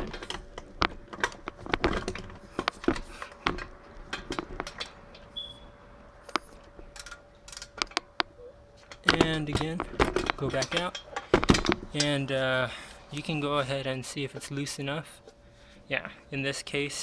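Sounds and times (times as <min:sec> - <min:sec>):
ratchet clicking on metal: 0:06.3 - 0:08.3.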